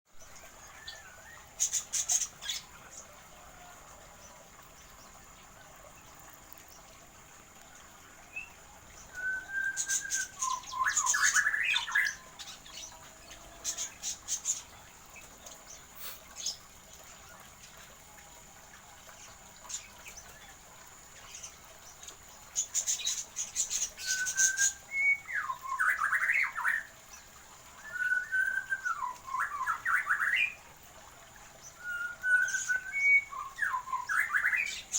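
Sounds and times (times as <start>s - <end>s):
birds chirping and squawking: 7.8s - 17.9s.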